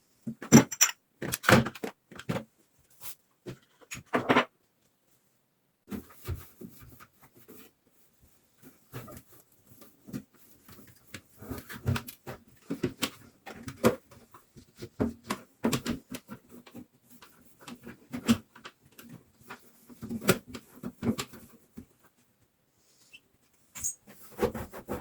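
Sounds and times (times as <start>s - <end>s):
items clattering in refrigerator: 0.4s - 2.3s.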